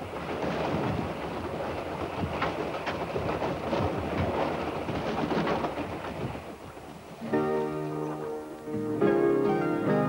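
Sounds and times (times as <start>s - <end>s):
wheels clicking over rail joints: 0.0s - 7.4s
train rushing: 0.0s - 10.0s.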